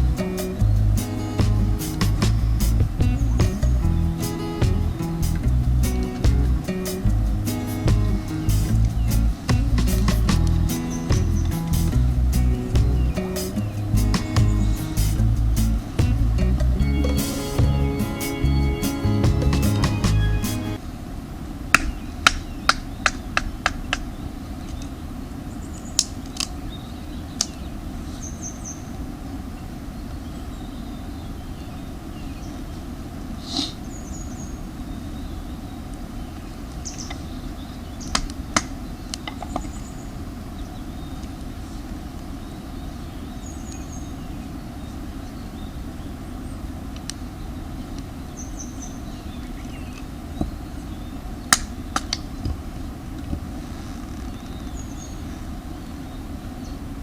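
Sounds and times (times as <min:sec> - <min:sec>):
small birds chirping: 0:00.0 - 0:20.8, 0:21.8 - 0:52.8, 0:53.6 - 0:57.0
steady low rumble: 0:00.0 - 0:20.8.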